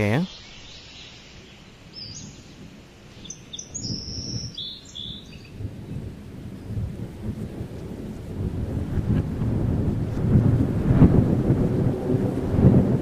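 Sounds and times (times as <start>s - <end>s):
bird chirps: 0.0s - 5.6s.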